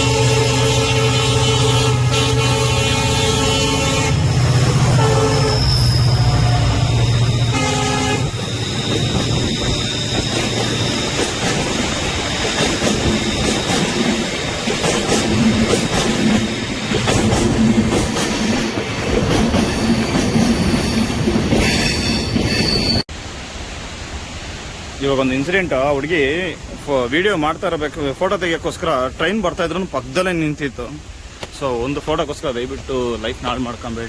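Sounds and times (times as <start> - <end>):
train horn: 0.0 - 9.0
train wheels clacking on track: 7.3 - 23.0.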